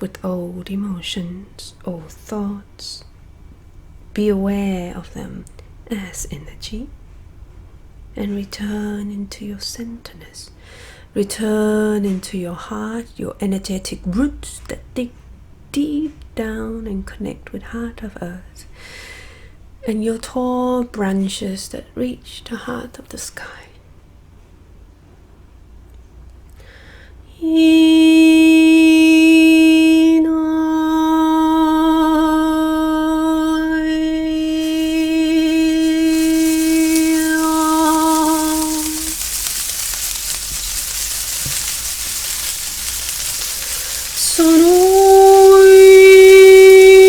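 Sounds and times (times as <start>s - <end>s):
voice toning long sustained notes: 30.6s - 47.0s
breathy hiss: 33.3s - 47.0s.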